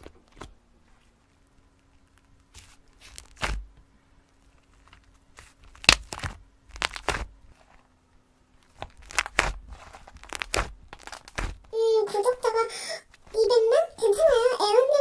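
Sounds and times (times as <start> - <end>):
slime squishing and popping: 1.9 - 3.8, 5.3 - 7.4, 8.6 - 11.8.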